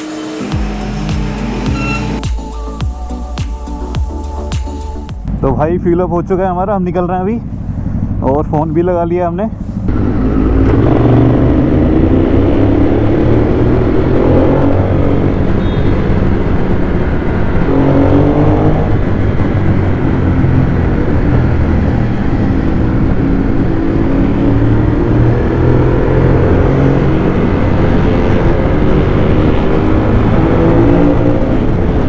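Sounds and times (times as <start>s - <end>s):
motorcycle engine accelerating: 6.9s - 32.0s.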